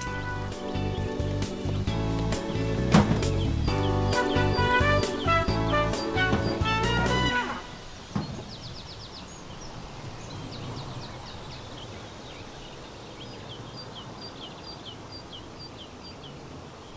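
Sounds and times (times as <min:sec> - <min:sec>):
small birds chirping: 0:00.0 - 0:16.9
steady background hiss: 0:00.0 - 0:16.9
brief thump: 0:02.9 - 0:03.5.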